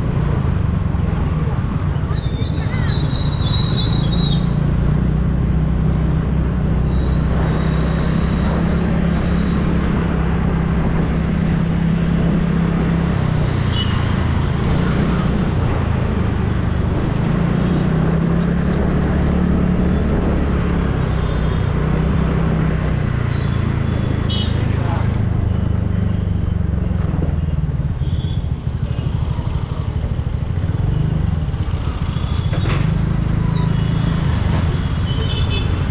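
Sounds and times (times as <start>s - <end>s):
passing city traffic: 0.0s - 35.9s
road and wind noise: 0.0s - 35.9s.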